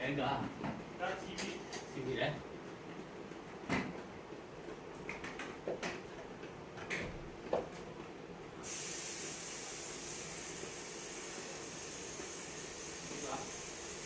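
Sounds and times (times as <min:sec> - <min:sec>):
steady high hiss: 0:08.6 - 0:14.0.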